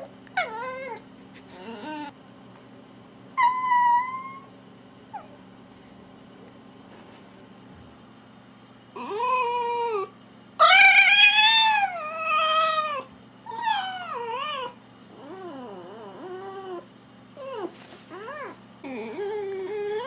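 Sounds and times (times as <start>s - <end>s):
animal drawn-out wavering calls: 3.4s - 4.5s, 9.0s - 20.0s.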